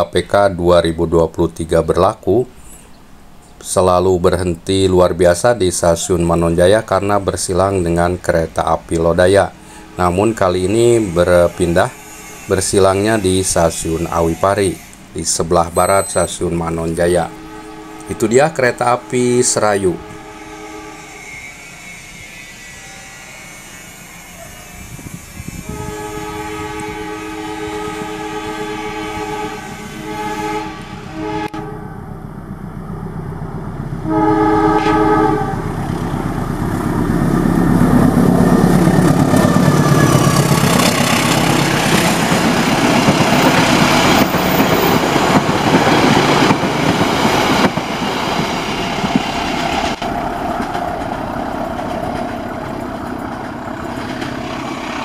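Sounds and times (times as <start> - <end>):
locomotive engine passing: 0.0 - 55.0
locomotive horn blasts: 9.3 - 32.2, 34.0 - 36.6, 38.2 - 46.5
train wheels clickety-clack: 38.2 - 55.0.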